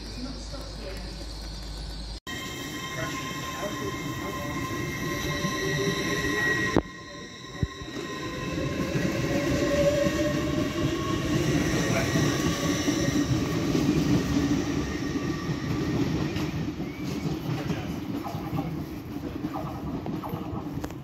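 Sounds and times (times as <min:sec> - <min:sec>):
train wheels rumbling on rail: 0:00.0 - 0:21.0
traction motor whine rising: 0:00.4 - 0:16.8.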